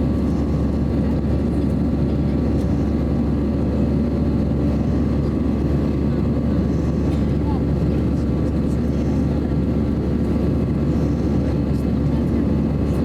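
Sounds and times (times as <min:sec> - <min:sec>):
aircraft cabin engine drone: 0:00.0 - 0:13.0.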